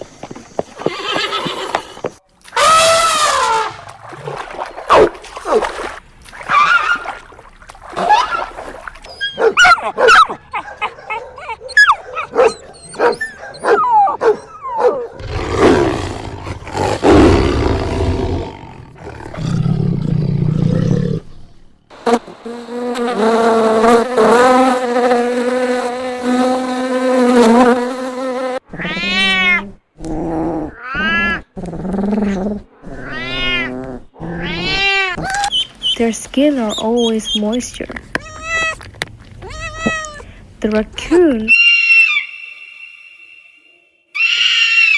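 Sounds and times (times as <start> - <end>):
animal roar: 15.2 - 21.3
animal yips and clicks: 35.2 - 36.0, 39.4 - 40.2
rising and falling animal calls: 41.5 - 44.9.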